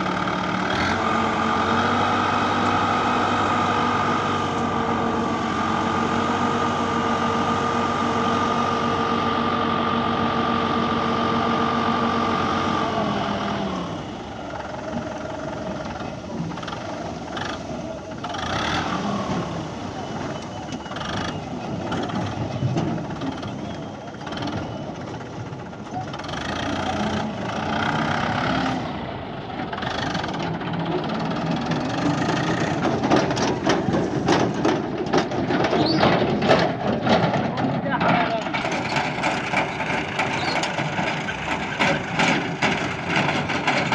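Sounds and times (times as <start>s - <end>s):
engine running: 0.0s - 43.9s
people talking: 15.0s - 24.2s, 37.0s - 38.9s.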